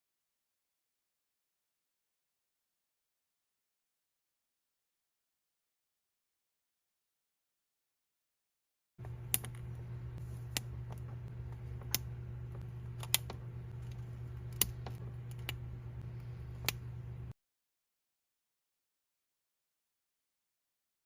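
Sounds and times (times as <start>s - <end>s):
steady low hum: 9.0s - 17.4s
plastic parts clicking together: 9.3s - 9.7s, 11.8s - 15.6s.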